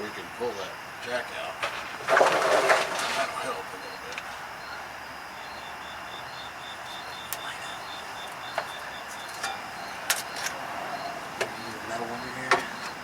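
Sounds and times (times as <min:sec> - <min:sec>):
steady outdoor hiss: 0:00.0 - 0:13.0
rapid high chirping: 0:03.8 - 0:13.0.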